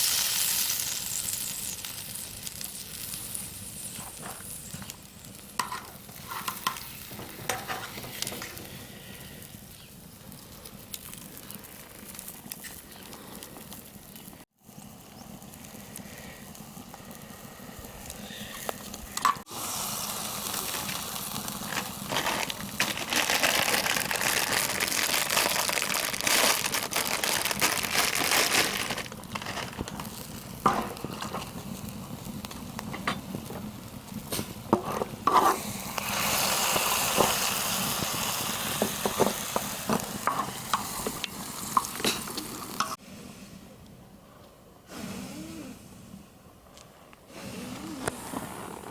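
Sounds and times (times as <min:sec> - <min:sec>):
food sizzling in fat: 0:00.0 - 0:43.0
clicks and scrapes of turning food: 0:05.6 - 0:08.8, 0:20.5 - 0:24.2, 0:27.6 - 0:31.8, 0:32.4 - 0:36.1, 0:38.7 - 0:43.0.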